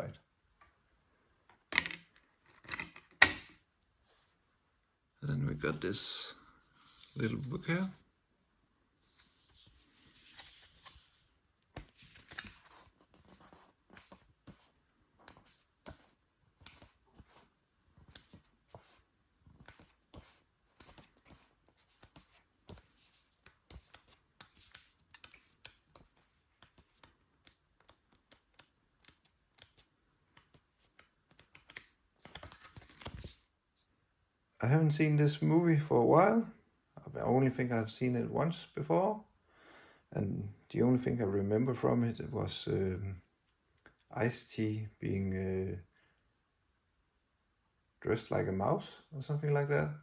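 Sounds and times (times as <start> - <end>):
booklet pages being leafed through: 6.8 - 8.0, 9.0 - 33.5.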